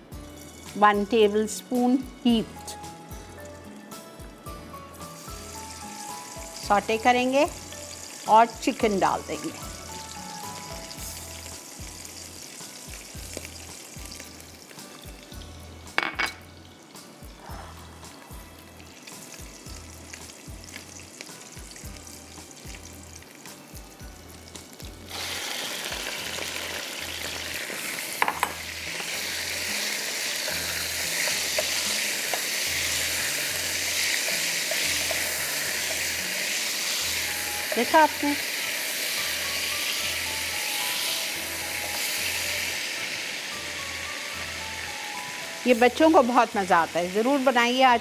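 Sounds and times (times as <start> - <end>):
chicken sizzling in hot oil: 0.0 - 48.0
garlic sizzling in oil: 0.0 - 48.0
utensil knocking on pan: 16.0 - 16.4, 28.2 - 28.6.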